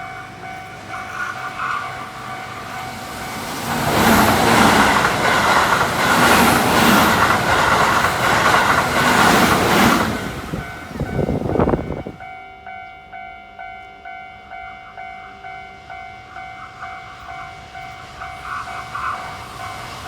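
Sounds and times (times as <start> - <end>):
train wheels clicking over rail joints: 0.0 - 12.2
level crossing warning bell: 0.0 - 20.0.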